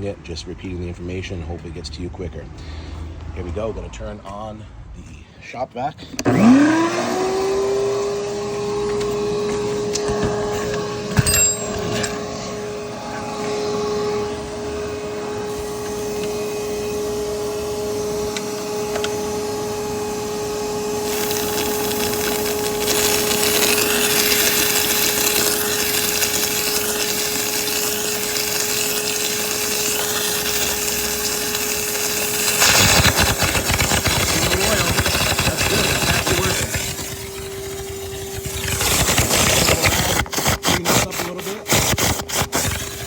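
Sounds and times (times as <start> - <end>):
shop vac whining: 5.5 - 43.0.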